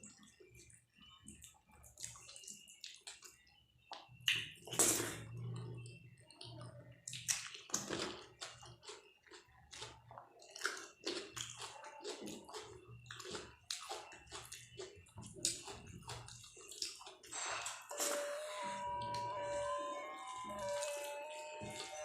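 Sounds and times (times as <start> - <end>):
wet chewing and lip smacking: 1.3 - 17.3.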